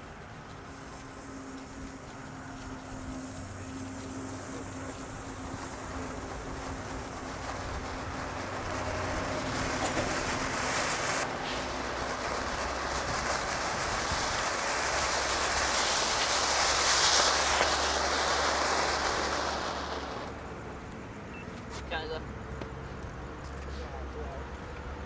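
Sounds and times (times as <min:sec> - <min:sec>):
firework fountain hissing: 0:00.0 - 0:25.0.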